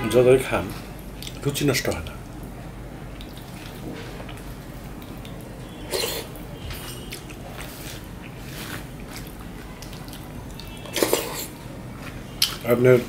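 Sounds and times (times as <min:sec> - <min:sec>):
wet chewing: 0:03.1 - 0:12.7.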